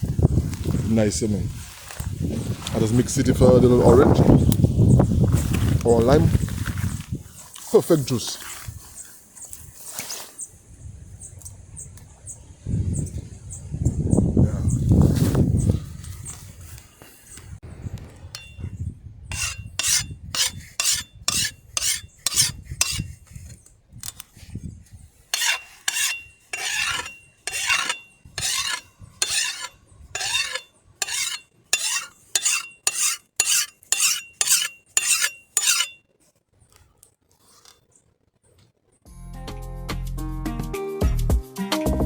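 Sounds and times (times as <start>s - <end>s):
file rasping on metal blade: 18.4s - 18.6s, 19.3s - 23.3s, 25.3s - 36.0s.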